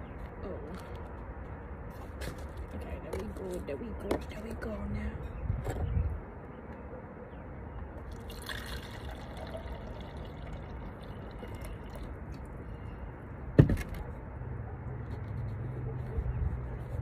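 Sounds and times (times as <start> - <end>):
water pouring and dripping: 8.1 - 12.5.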